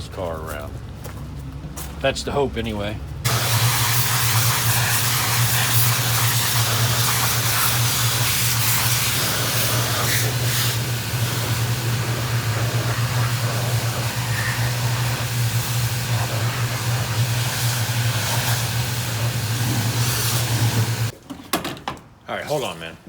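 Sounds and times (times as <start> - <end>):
loud hiss: 3.3 - 21.1
low machine hum: 5.9 - 21.1.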